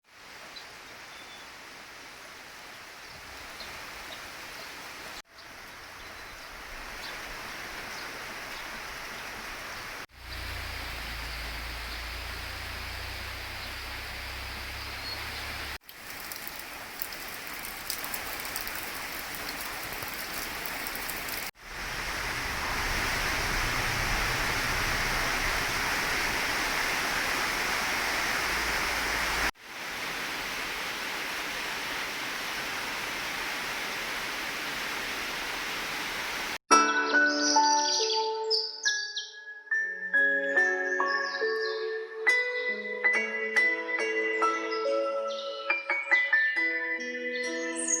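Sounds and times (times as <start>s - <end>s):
steady rain falling: 0.0s - 36.6s.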